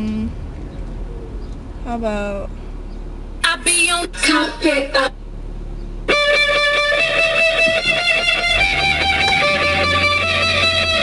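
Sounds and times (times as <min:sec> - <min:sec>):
heavy bass: 0:00.0 - 0:11.0
strummed electric guitar: 0:06.1 - 0:11.0.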